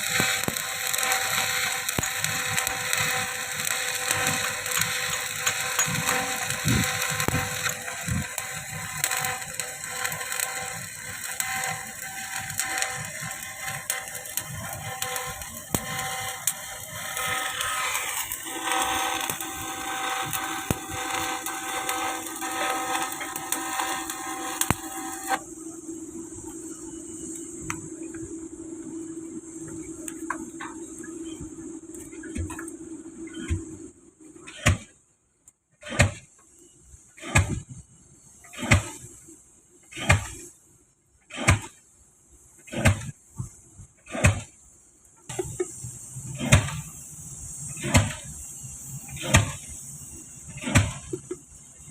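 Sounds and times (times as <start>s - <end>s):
welding arc crackling: 0.0s - 25.4s, 45.3s - 51.9s
faint hum: 0.0s - 35.6s
pile hammer strikes: 35.9s - 36.2s, 37.2s - 37.6s, 38.6s - 39.0s, 42.8s - 43.1s, 44.1s - 44.5s, 47.8s - 48.2s, 50.6s - 51.3s.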